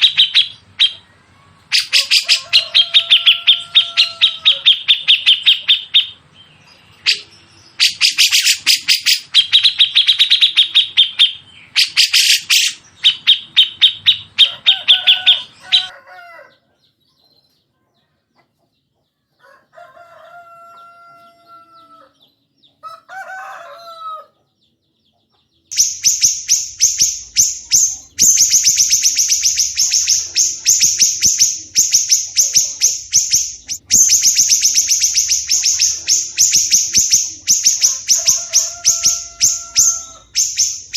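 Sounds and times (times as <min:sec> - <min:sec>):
songbirds chattering: 0:00.0 - 0:40.9.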